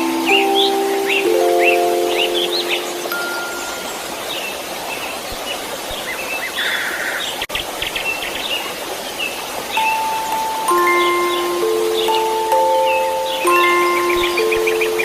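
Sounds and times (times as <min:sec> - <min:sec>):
soft chime-like musical notes: 0:00.0 - 0:04.5, 0:09.7 - 0:15.0
birds chirping: 0:00.0 - 0:15.0
white noise hiss: 0:00.0 - 0:15.0.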